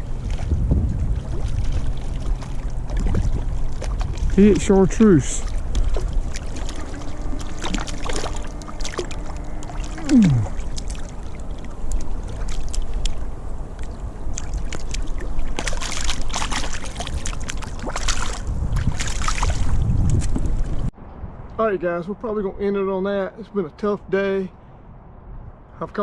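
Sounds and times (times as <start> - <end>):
wind buffeting microphone: 0.0 - 22.6
river water rushing: 1.3 - 18.4.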